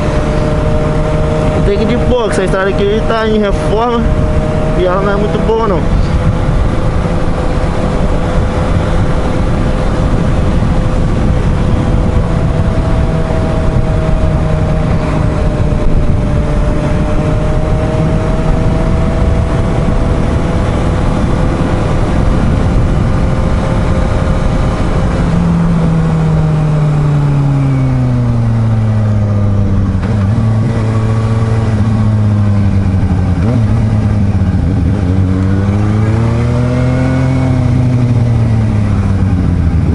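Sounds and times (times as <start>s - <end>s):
motorcycle engine running: 0.0s - 39.9s
wind rushing: 0.0s - 39.9s.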